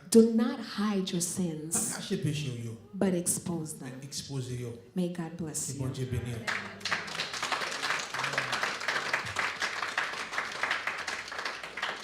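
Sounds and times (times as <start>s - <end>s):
congregation applauding: 6.2s - 12.0s.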